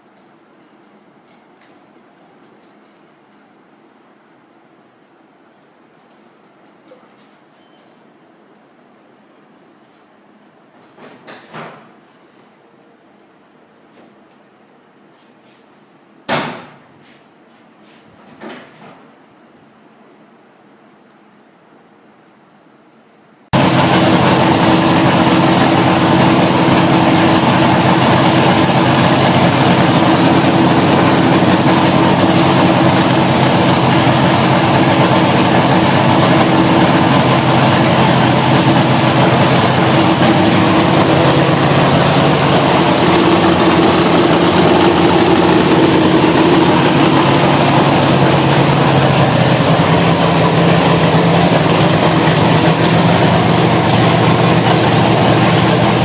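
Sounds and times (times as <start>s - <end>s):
race engine idling: 23.6s - 56.0s.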